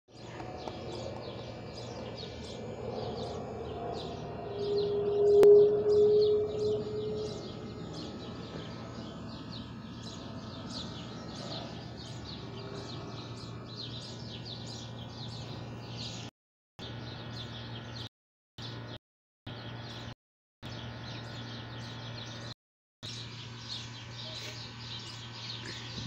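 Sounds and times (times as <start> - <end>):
low hum: 0.1 - 16.2
small birds chirping: 0.1 - 26.0.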